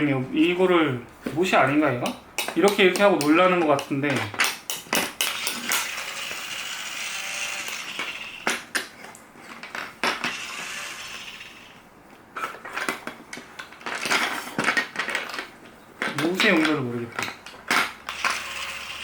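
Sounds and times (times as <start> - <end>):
plastic toy pieces clattering: 4.2 - 8.7, 12.6 - 19.0.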